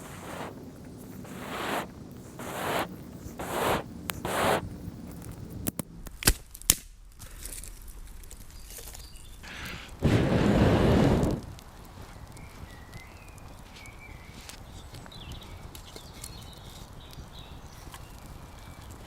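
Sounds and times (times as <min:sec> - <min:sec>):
fire rushing swells: 0:00.0 - 0:05.0, 0:10.0 - 0:12.3.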